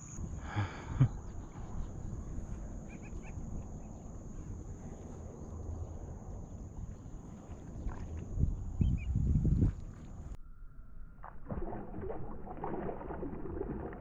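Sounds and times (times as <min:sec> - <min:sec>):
wind on microphone: 0:00.0 - 0:10.4
water sloshing around kayak: 0:06.9 - 0:10.4, 0:11.5 - 0:14.0.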